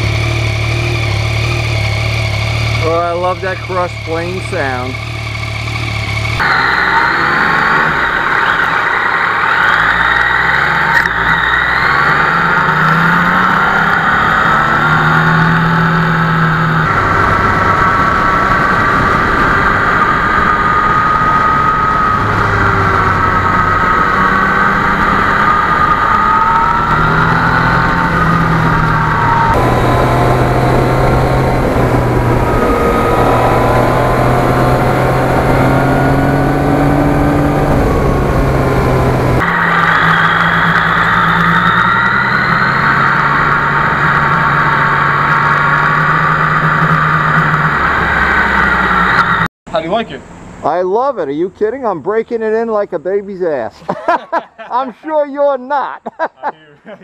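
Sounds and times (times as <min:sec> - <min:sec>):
motorcycle engine accelerating: 0:00.0 - 0:49.5
wind rushing over microphone: 0:15.2 - 0:39.4.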